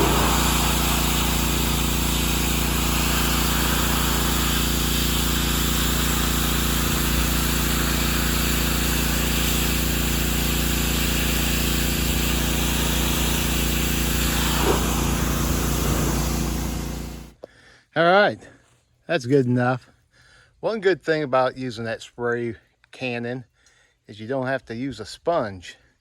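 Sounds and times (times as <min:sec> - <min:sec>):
pressure washer motor drone: 0:00.0 - 0:17.4
water spray hissing: 0:00.0 - 0:17.4.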